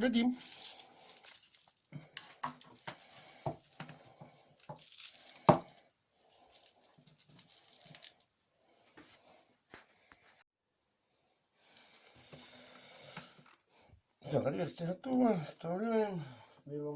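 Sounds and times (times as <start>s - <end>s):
rustling: 0.3s - 10.4s.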